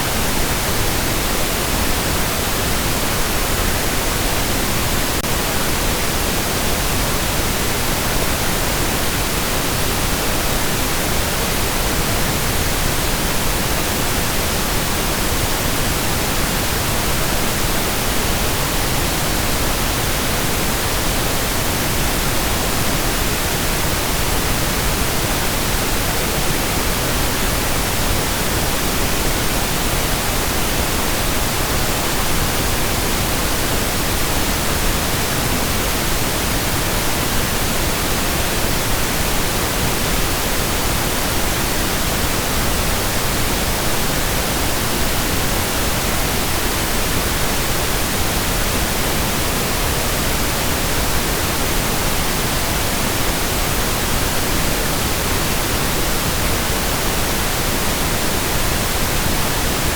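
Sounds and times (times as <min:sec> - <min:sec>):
pink noise hiss: 0:00.0 - 0:59.9.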